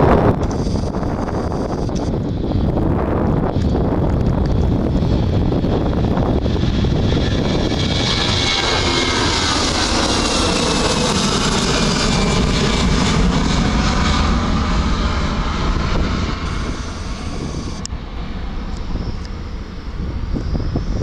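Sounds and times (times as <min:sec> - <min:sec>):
jet engines of passing airliner: 0:00.0 - 0:21.0
faint falling whine: 0:07.5 - 0:21.0.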